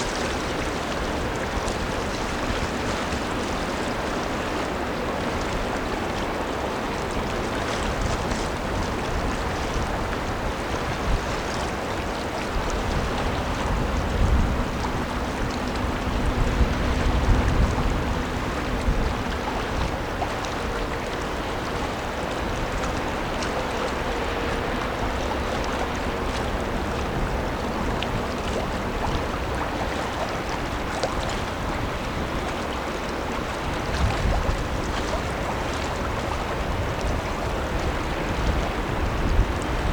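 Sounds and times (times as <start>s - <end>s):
faint ship engine hum: 0.0s - 39.9s
river water rushing: 0.0s - 39.9s
wind gusts on microphone: 0.0s - 39.9s.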